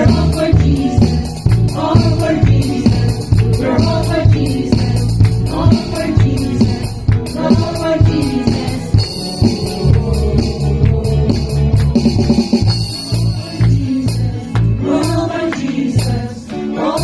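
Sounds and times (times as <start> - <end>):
live band playing: 0.0 - 17.0.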